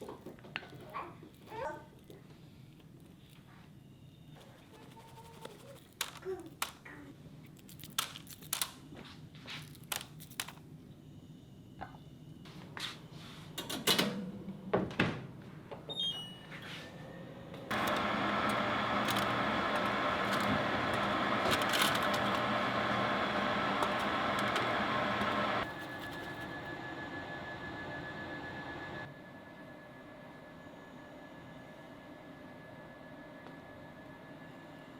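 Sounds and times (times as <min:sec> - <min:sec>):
appliance electronic beeps: 0:15.9 - 0:29.1
appliance humming: 0:17.1 - 0:29.1.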